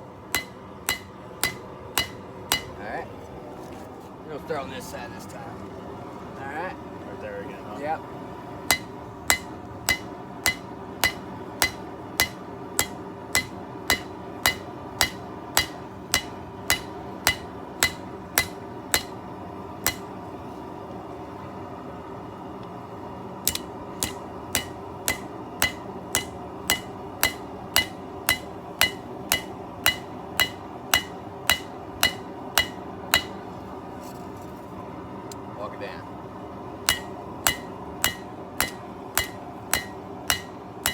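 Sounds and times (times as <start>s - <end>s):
steady background noise: 0.0s - 40.9s
hammer ringing on anvil: 0.4s - 2.8s, 8.7s - 19.2s, 19.9s - 20.1s, 23.5s - 33.4s, 36.9s - 40.9s.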